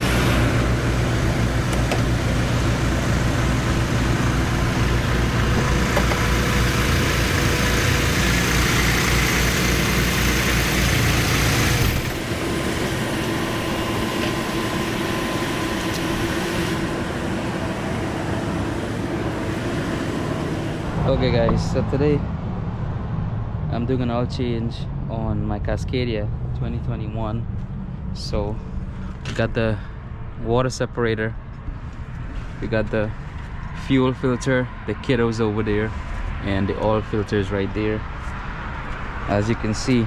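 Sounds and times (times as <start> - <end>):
diesel truck engine idling: 0.0 - 21.3.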